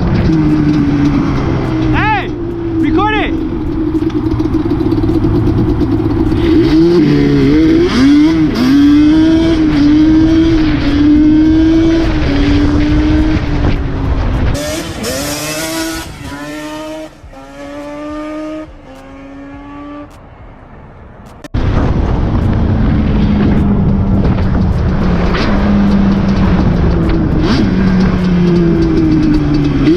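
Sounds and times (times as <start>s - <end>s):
car engine revving loudly: 0.0s - 13.7s, 14.4s - 20.2s
loud rushing noise: 21.2s - 28.8s.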